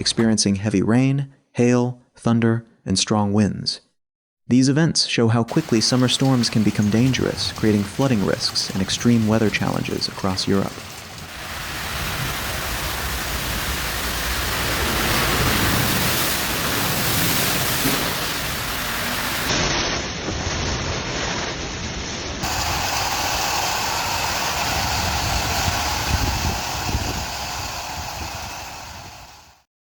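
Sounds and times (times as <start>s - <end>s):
heavy rain and wind hiss: 5.5s - 29.6s.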